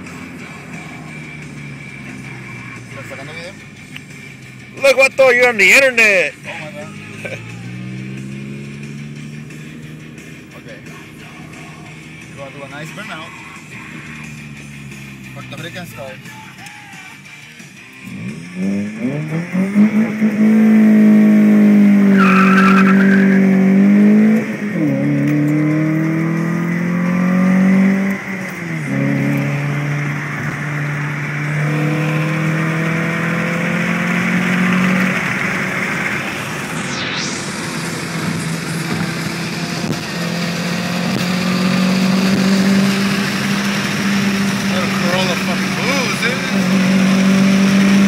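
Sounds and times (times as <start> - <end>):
car engine revving: 0.0 - 48.0
tire squeal: 21.8 - 24.0.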